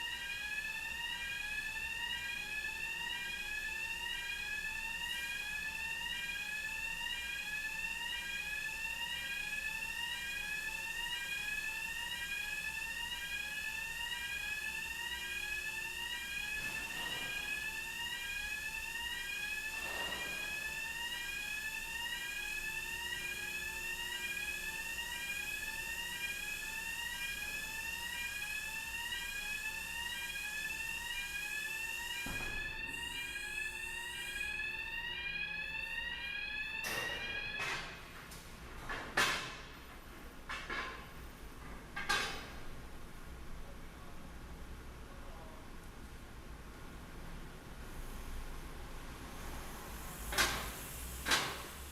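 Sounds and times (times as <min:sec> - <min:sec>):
electronic whooping warning alarm: 0:00.0 - 0:38.1.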